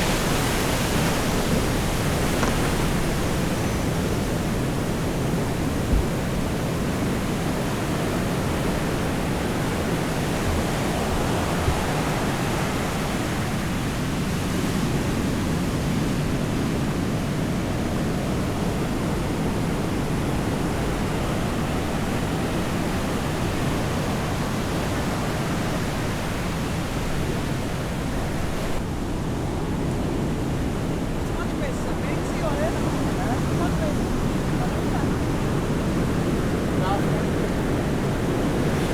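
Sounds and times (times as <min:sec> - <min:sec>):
surf washing on sandy beach: 0:00.0 - 0:38.9
small knocks: 0:02.2 - 0:02.9.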